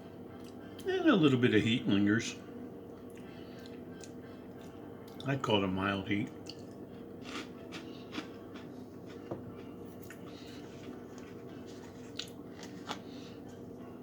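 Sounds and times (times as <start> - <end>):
low electrical hum: 0.0 - 14.0
chewing crunchy snacks: 6.3 - 13.7.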